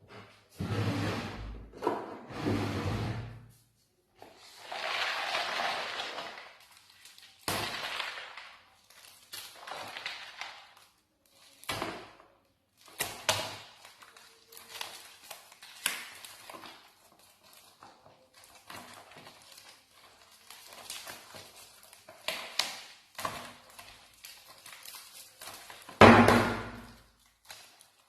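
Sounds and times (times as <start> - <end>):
packaging rustling: 12.7 - 26.0, 26.6 - 28.0.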